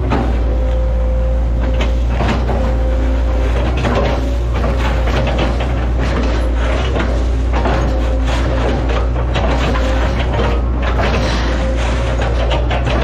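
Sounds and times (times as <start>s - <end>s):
excavator diesel engine: 0.0s - 13.0s
hydraulic whine: 0.0s - 13.0s
knocks and cracks: 3.6s - 13.0s.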